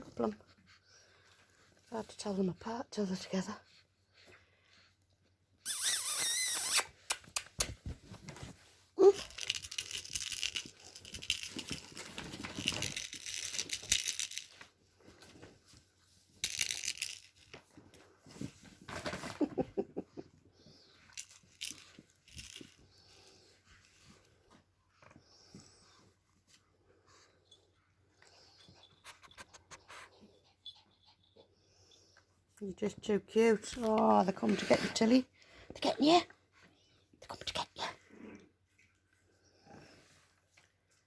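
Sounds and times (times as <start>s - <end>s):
puppy squealing: 5.6s - 6.9s
puppies scratching and tearing: 7.8s - 15.9s.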